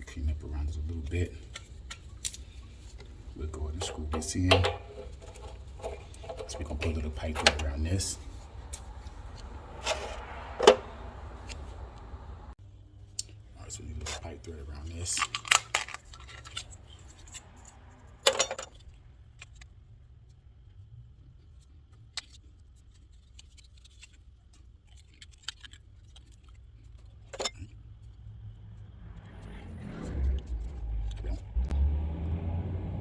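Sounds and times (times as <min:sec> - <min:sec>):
steady low hum: 0:00.0 - 0:12.6
pipe fittings and tools clinking: 0:01.0 - 0:12.4, 0:15.1 - 0:18.8, 0:27.2 - 0:28.2.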